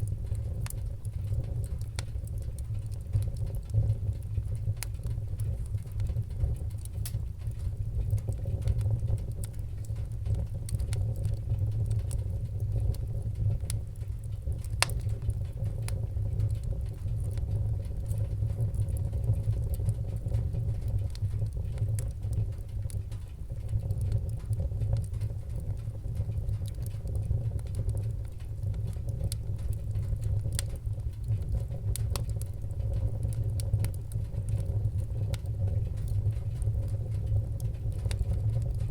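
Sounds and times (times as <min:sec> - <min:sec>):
low rumble of burning fire: 0:00.0 - 0:38.9
wood fire crackling: 0:00.0 - 0:38.9
sharp pops of fire: 0:14.5 - 0:15.2.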